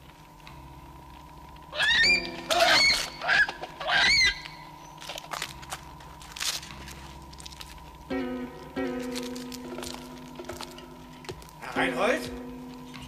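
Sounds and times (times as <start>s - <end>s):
bird honking: 1.8s - 4.6s.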